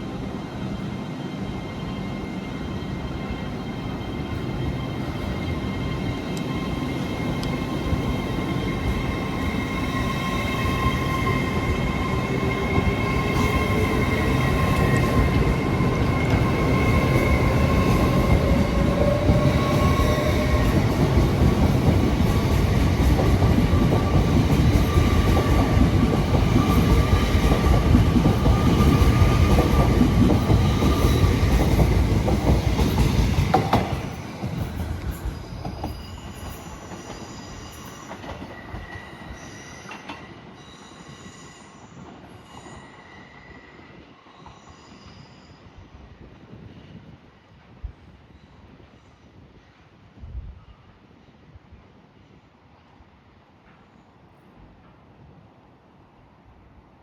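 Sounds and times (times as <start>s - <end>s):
train wheels rumbling on rails: 0.0s - 41.1s.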